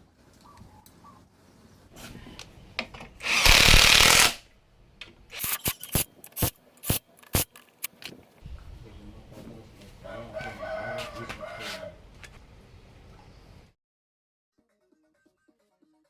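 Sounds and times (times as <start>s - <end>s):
workshop tool running: 3.2s - 4.4s.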